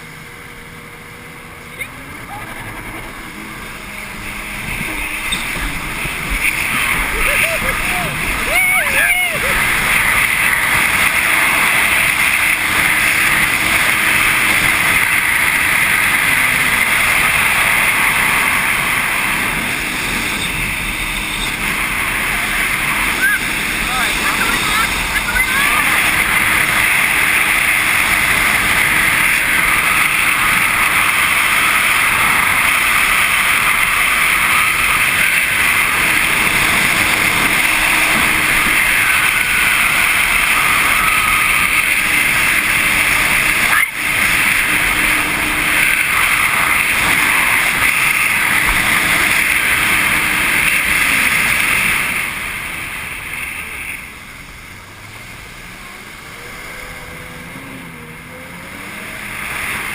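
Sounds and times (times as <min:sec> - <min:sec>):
jet ski engine: 0:00.0 - 0:59.9
wind and water rushing: 0:00.0 - 0:59.9.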